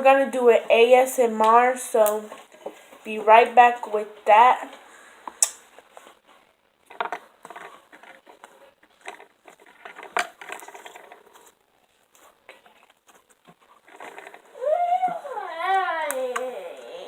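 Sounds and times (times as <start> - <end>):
small crackling pops: 1.4 - 2.8, 4.7 - 15.1.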